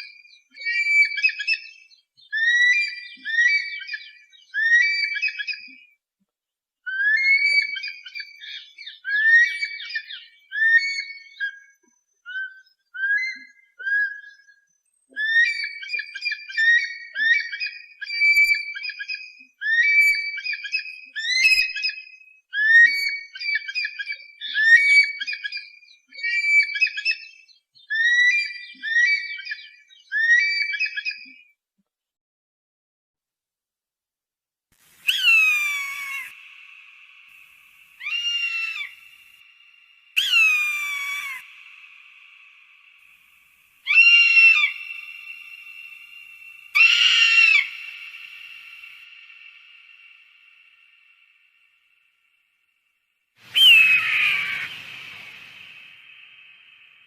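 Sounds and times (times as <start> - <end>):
raptor whistled cries: 6.9 - 11.7, 15.2 - 31.2, 35.0 - 43.0, 43.8 - 51.2, 53.4 - 57.0.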